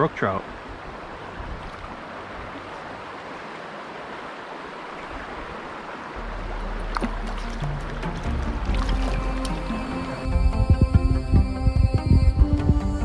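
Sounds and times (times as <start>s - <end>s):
river water rushing over rocks: 0.0s - 13.0s
low steady hum: 6.2s - 13.0s.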